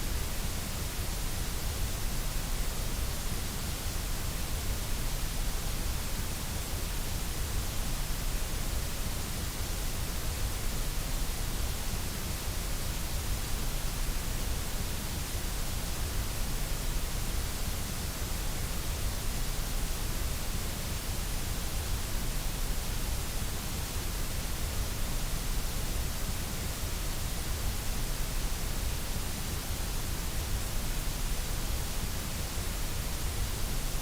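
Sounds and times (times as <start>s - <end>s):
white noise hiss: 0.0s - 34.0s.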